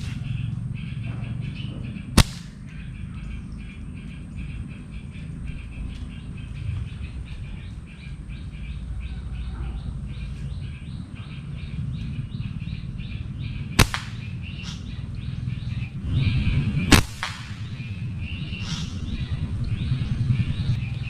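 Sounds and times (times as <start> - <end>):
low steady rumble: 0.0 - 21.0
slingshot snap: 2.2 - 2.6, 13.8 - 14.9, 16.9 - 17.7.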